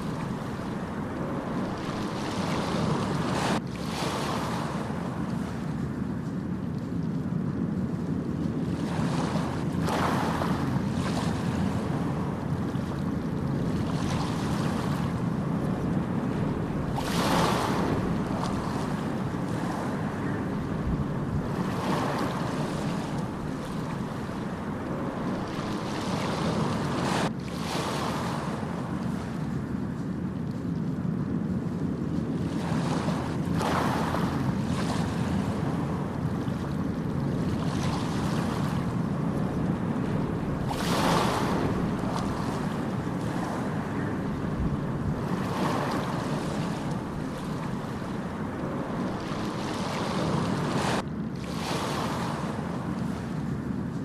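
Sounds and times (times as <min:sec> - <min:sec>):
low rush of water: 0:00.0 - 0:05.8, 0:09.9 - 0:27.6, 0:33.4 - 0:54.0
waves breaking: 0:00.0 - 0:54.0.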